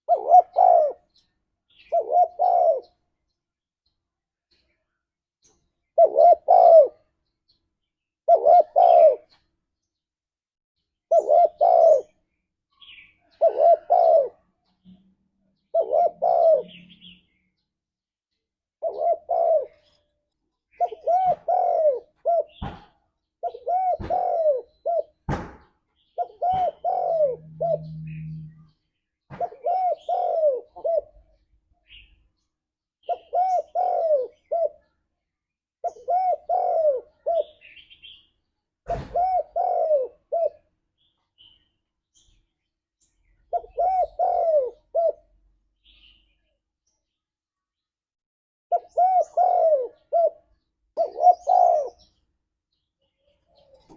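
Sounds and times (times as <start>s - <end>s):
dove cooing: 0.0s - 3.0s, 5.9s - 7.1s, 8.2s - 9.4s, 11.1s - 12.2s, 12.8s - 14.5s, 15.6s - 17.2s, 18.8s - 20.0s, 20.7s - 25.5s, 26.2s - 28.7s, 29.3s - 32.0s, 33.0s - 35.0s, 35.8s - 38.2s, 38.9s - 40.7s, 43.5s - 45.3s, 48.7s - 52.2s, 53.6s - 53.9s.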